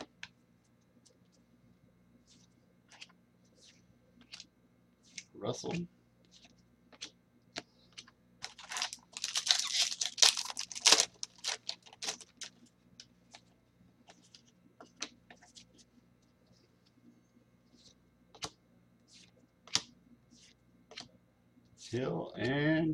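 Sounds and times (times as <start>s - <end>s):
wrapper tearing and crinkling: 8.4s - 12.5s.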